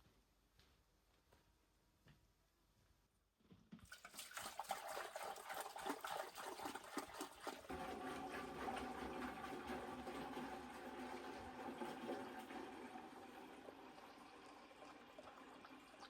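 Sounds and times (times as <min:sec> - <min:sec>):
water pouring into a container: 0:03.9 - 0:16.0.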